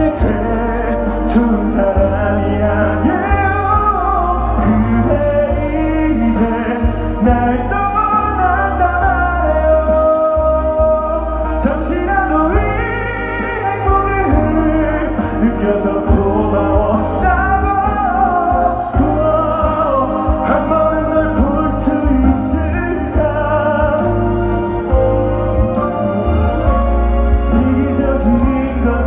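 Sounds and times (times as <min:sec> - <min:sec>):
band backing music: 0:00.0 - 0:29.0
man singing pop ballad: 0:00.0 - 0:29.0.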